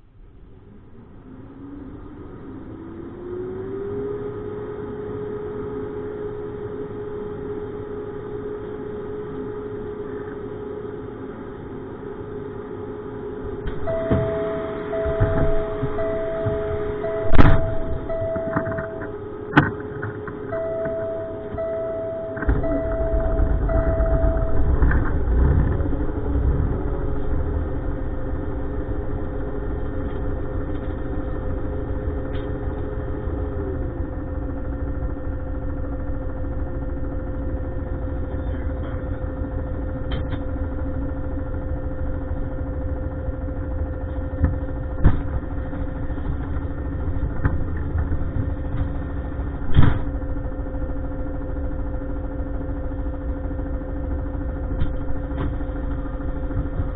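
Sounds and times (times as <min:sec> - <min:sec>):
diesel truck engine starting and idling: 0:13.4 - 0:56.9
beeping tone: 0:13.7 - 0:19.6, 0:20.4 - 0:25.4.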